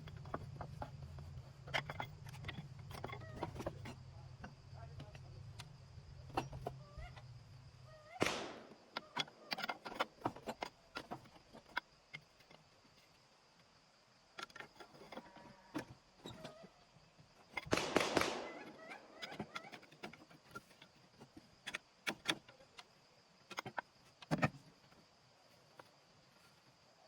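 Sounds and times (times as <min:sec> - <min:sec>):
metal clanks and rattles: 0:00.0 - 0:07.3.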